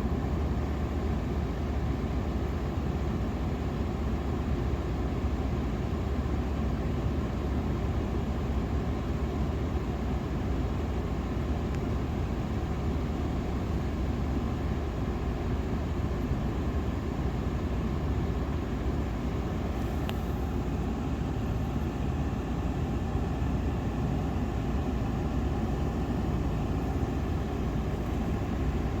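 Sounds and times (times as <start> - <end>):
faint tick: 20.0 - 20.2
vehicle road rumble: 24.4 - 29.0.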